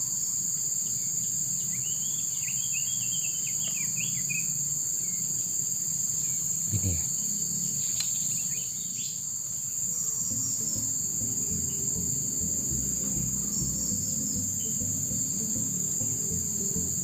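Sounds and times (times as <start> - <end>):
insects shrilling: 4.1 - 17.0
low shifting background noise: 10.1 - 17.0.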